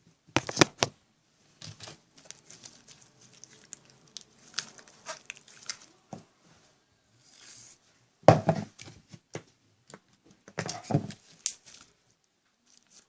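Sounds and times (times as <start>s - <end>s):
hands kneading sticky slime: 1.5s - 6.4s.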